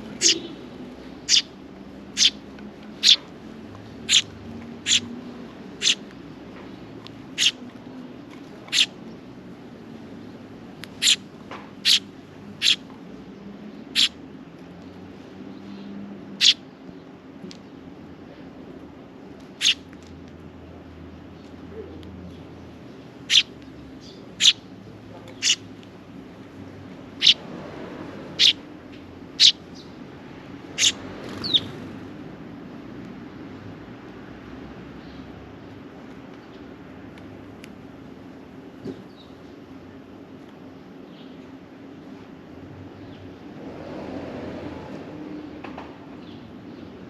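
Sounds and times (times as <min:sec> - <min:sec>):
sparrow chirping: 0:00.0 - 0:03.2, 0:03.9 - 0:05.1, 0:05.7 - 0:06.0, 0:07.3 - 0:07.6, 0:08.7 - 0:09.0, 0:10.9 - 0:12.8, 0:13.9 - 0:14.2, 0:16.4 - 0:16.6, 0:19.6 - 0:19.8, 0:22.4 - 0:25.7, 0:27.1 - 0:27.4, 0:28.3 - 0:28.6, 0:29.3 - 0:30.0, 0:30.7 - 0:31.8.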